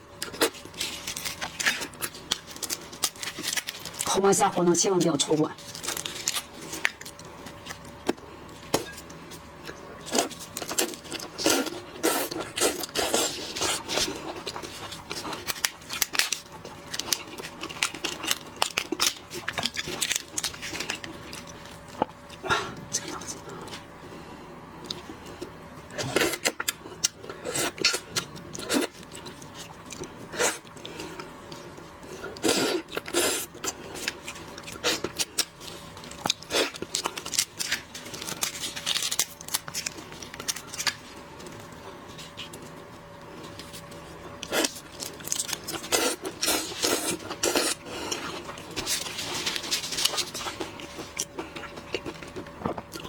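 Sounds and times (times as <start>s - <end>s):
shrimp shells snapping and crunching: 0.2s - 4.1s, 13.9s - 21.6s, 34.0s - 41.0s
shrimp shells cracking: 14.4s - 21.6s.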